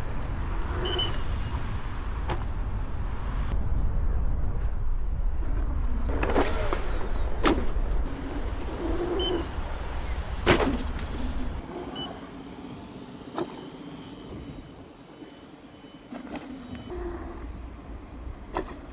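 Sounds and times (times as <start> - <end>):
wind rumble on microphone: 0.0 - 13.6, 14.2 - 15.0.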